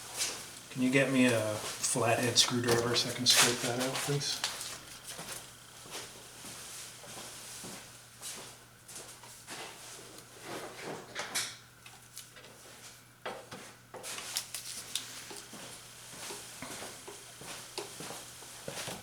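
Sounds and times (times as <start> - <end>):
low steady hum: 0.0 - 6.8.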